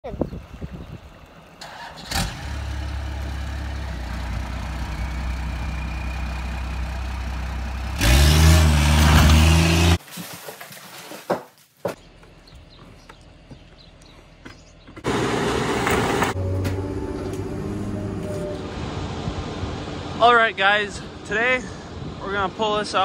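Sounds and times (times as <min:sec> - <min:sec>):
vehicle engine idling and revving: 0:00.1 - 0:10.0, 0:13.1 - 0:20.2.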